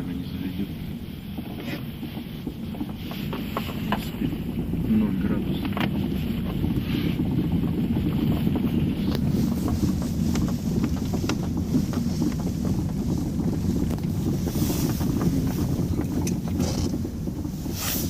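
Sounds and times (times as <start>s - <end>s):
vehicle engine rumble: 0.0s - 18.0s
wind buffeting microphone: 0.0s - 18.0s.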